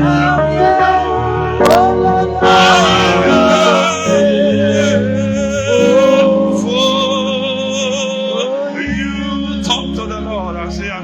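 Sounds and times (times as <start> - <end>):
person singing long notes: 0.0 - 9.6
sustained chords: 0.0 - 10.4.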